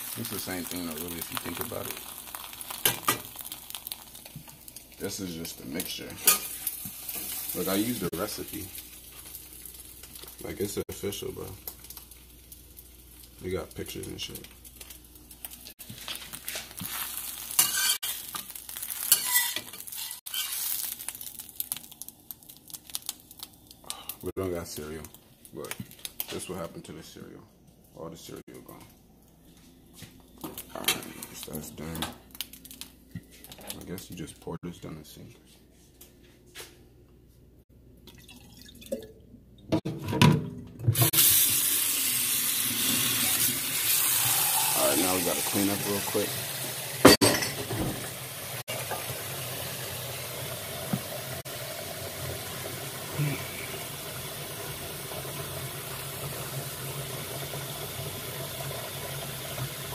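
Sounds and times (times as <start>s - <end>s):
water running into sink: 40.9s - 59.9s.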